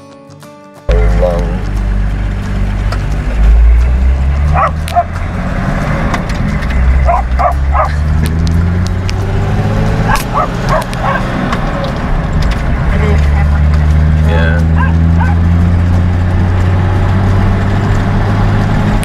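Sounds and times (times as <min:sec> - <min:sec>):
car engine droning: 0:00.9 - 0:19.0
dogs barking and yipping: 0:04.2 - 0:08.4, 0:09.7 - 0:12.0, 0:14.6 - 0:15.8.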